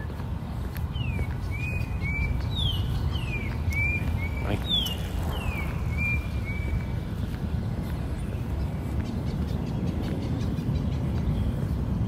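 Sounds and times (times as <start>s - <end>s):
songbird whistling: 0.9s - 6.9s
low rumble: 4.9s - 8.6s.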